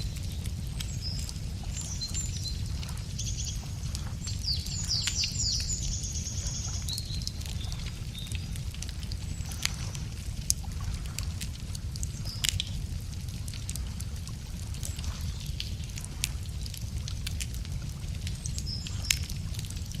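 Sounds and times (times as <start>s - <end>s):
birds singing: 0.0s - 10.2s
campfire crackling: 0.0s - 20.0s.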